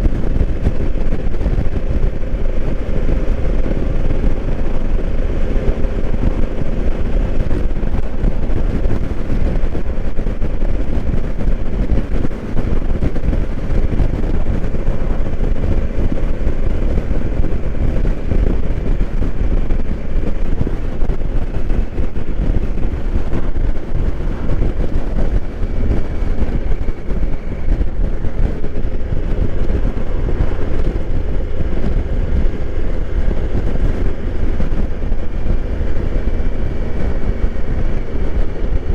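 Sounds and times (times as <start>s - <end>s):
motorcycle engine cruising: 0.0s - 38.9s
wind rushing over microphone: 0.0s - 38.9s.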